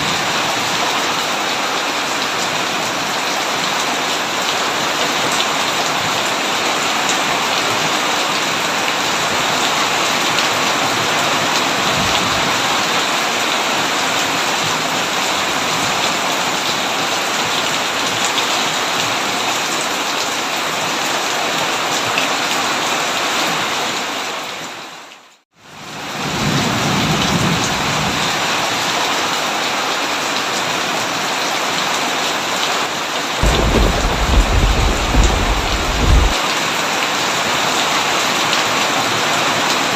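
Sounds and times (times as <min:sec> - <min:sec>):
heavy rain on a tin roof: 0:00.0 - 0:39.9
low rumble of thunder: 0:33.4 - 0:36.4.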